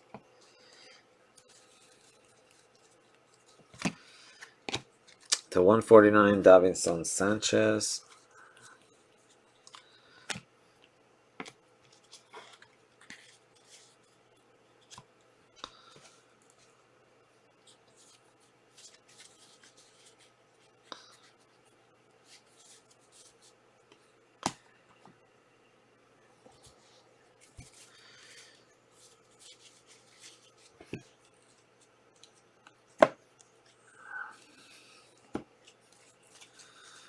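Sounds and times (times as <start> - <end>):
cards sliding and rubbing: 17.9 - 21.4, 26.6 - 32.4
cards tapped down: 33.0 - 33.2.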